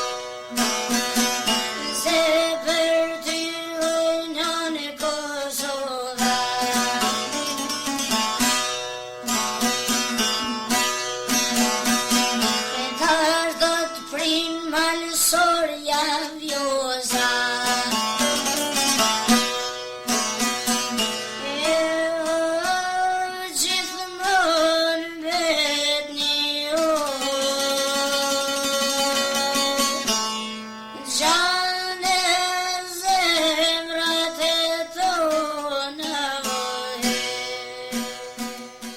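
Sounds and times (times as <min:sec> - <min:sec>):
plucked string instrument: 0:00.0 - 0:38.9
person singing ornamented line: 0:01.6 - 0:08.1, 0:12.6 - 0:19.1, 0:21.3 - 0:30.2, 0:30.9 - 0:38.9.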